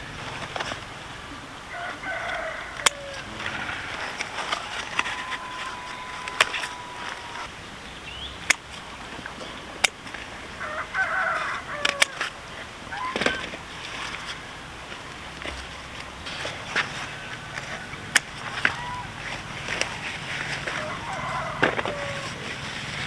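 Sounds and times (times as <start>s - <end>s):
roosters crowing: 0.0s - 7.7s, 10.1s - 23.0s
sharp clicks: 2.3s - 7.5s, 8.5s - 8.7s.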